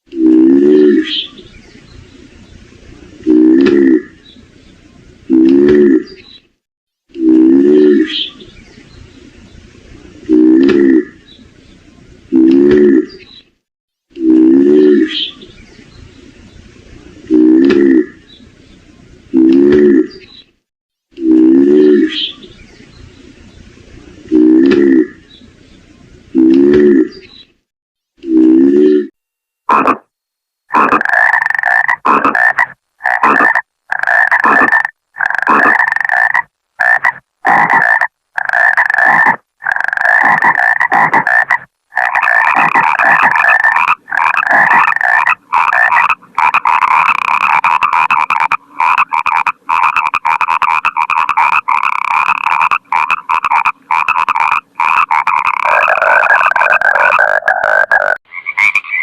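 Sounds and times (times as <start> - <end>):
frogs croaking: 30.7 - 59.0.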